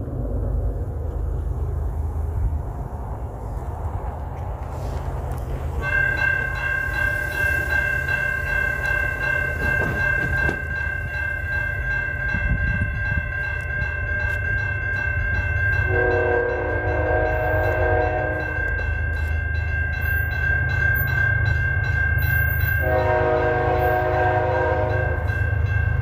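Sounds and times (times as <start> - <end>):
steady low rumble: 0.0 - 9.4
crossing warning bell ringing: 5.4 - 26.0
locomotive horn: 15.8 - 18.7, 22.8 - 25.3.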